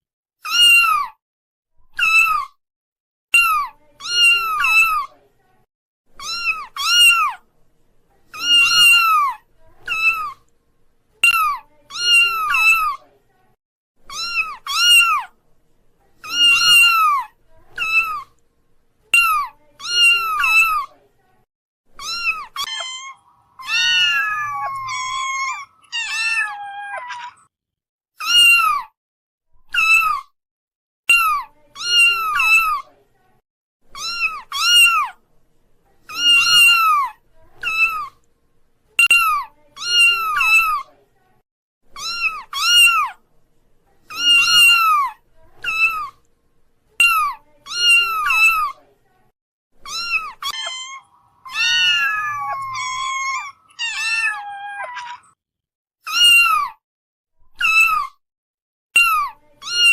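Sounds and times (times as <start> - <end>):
kitten mewing: 22.0 - 27.4, 44.1 - 46.1, 49.9 - 55.3.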